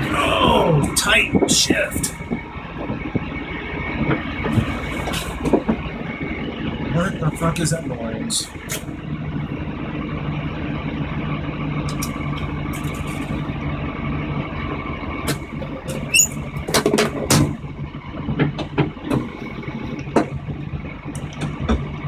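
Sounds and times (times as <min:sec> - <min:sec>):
car engine running while driving: 0:00.0 - 0:22.0
sharp knocks and rattles: 0:04.0 - 0:06.2, 0:15.2 - 0:22.0.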